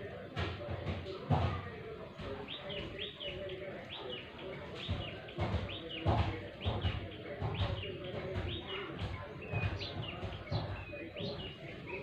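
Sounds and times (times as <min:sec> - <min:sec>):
small bird chirping: 0:02.1 - 0:12.0.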